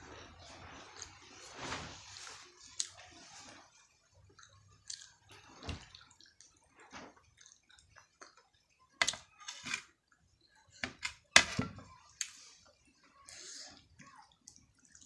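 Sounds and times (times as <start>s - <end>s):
wet chewing and lip-smacking: 4.2s - 8.9s.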